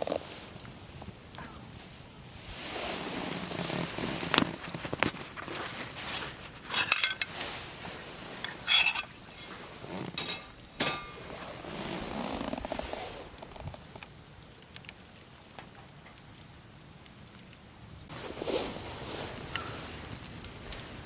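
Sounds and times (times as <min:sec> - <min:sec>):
metal cookware clinking: 0:06.7 - 0:07.4, 0:08.4 - 0:11.3
faint ticks: 0:13.4 - 0:17.6.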